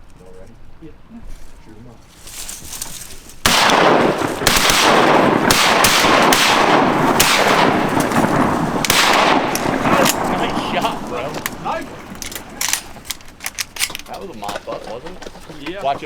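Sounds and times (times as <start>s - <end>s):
constant loud rush: 2.1s - 16.0s
shotguns firing: 3.4s - 14.6s.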